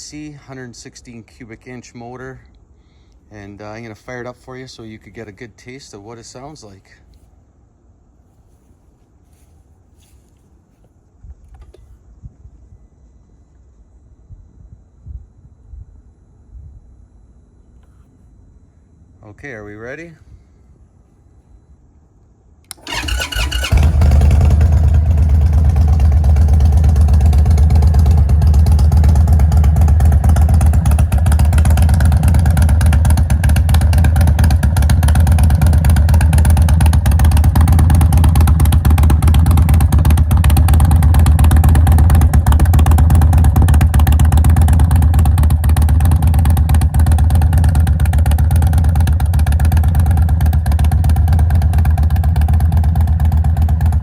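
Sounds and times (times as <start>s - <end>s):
motorcycle starter cranking: 22.7s - 53.9s
motorcycle engine idling: 22.7s - 54.0s.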